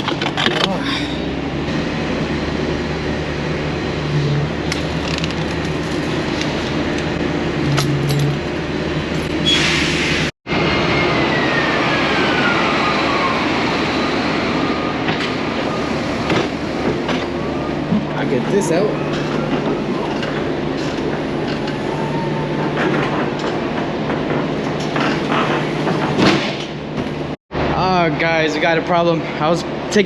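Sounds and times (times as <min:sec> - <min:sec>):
large engine humming: 0:00.0 - 0:09.5.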